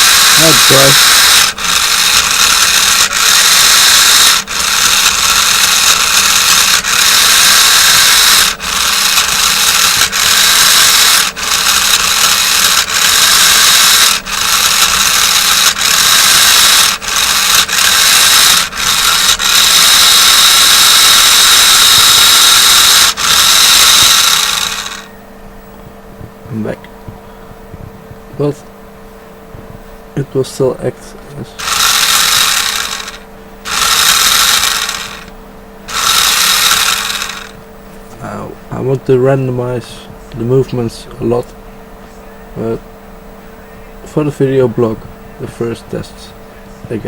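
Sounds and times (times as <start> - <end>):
toy car motor whining: 0.0 - 25.1, 31.6 - 35.3, 35.9 - 37.6.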